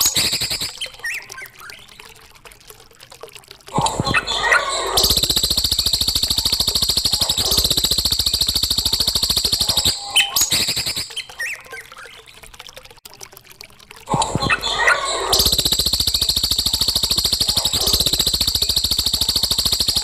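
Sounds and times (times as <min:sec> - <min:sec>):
songbird rattling trill: 0:00.0 - 0:01.5, 0:04.3 - 0:11.9, 0:14.6 - 0:20.0
bird chirps and whistles: 0:00.0 - 0:01.8, 0:04.3 - 0:11.8, 0:14.7 - 0:20.0.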